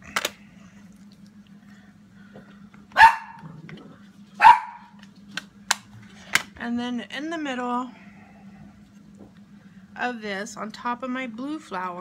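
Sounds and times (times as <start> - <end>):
dog barking: 3.0 - 3.4, 4.4 - 5.0.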